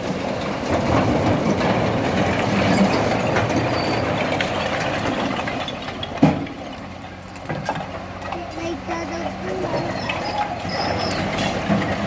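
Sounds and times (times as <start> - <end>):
clatter: 0.0 - 8.3
engine running: 0.0 - 12.0.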